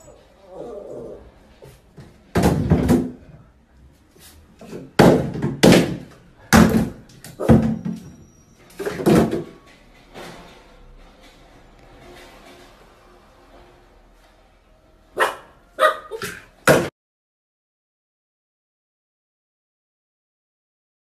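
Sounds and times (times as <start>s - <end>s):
plastic bottles dropping into tub: 2.3s - 3.2s, 4.8s - 8.1s, 8.8s - 9.6s.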